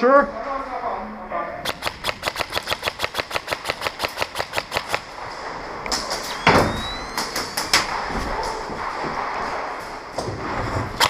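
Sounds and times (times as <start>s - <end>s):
airsoft rifle firing: 1.6s - 5.2s.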